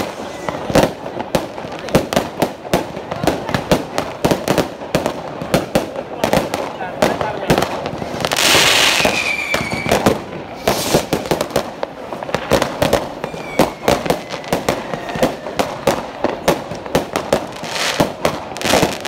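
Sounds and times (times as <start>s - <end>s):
fireworks bangs and crackles: 0.0s - 19.0s
faint falling whistle: 9.0s - 10.0s, 13.3s - 14.5s.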